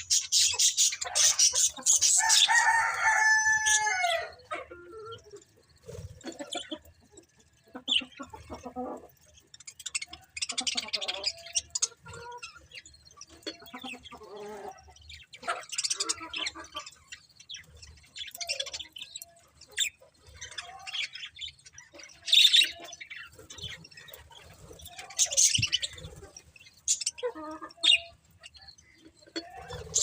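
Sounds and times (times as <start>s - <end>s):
budgerigars chirping and chattering: 0.0s - 30.0s.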